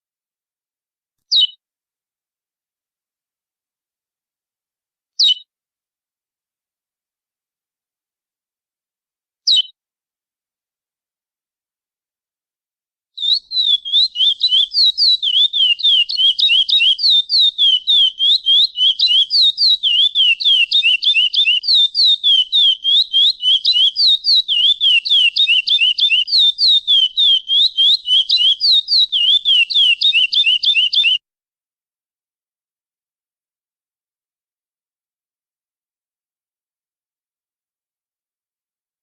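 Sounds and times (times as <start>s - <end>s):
finch whistling rapid notes: 13.2s - 31.2s.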